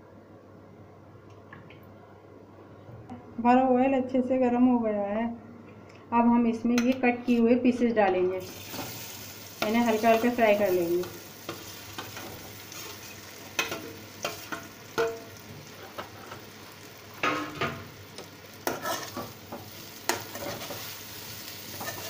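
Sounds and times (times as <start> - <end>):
food sizzling in hot oil: 8.4 - 22.0
spoon scraping and clinking pan: 18.7 - 19.4, 21.7 - 22.0.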